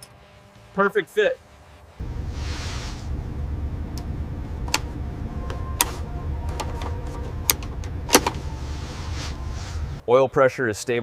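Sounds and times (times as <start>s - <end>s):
machinery hum: 1.4s - 10.0s.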